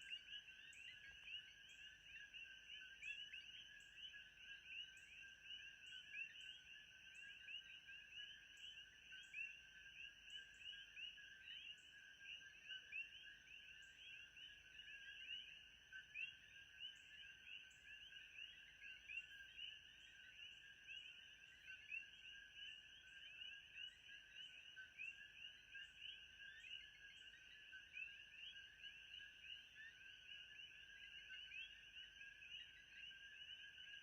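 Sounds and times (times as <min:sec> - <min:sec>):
frogs chirping: 0:00.0 - 0:34.0.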